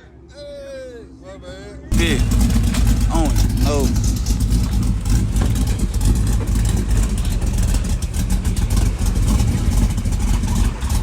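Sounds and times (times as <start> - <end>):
car engine running loudly: 1.9 - 11.0.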